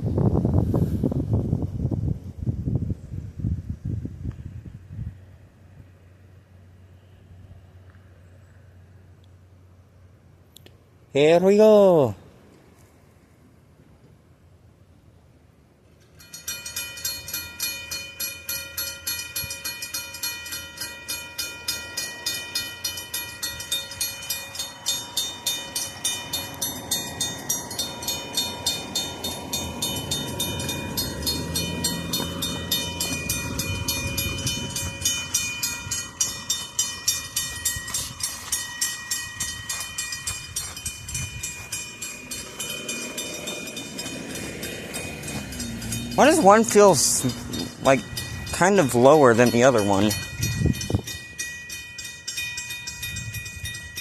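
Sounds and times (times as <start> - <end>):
railroad crossing bells clanging: 15.9 - 54.0.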